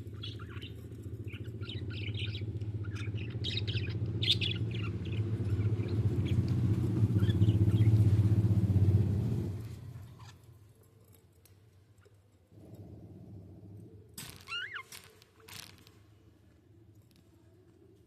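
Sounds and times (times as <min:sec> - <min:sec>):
budgies chirping: 0:00.0 - 0:08.1
low steady rumble: 0:00.0 - 0:10.3.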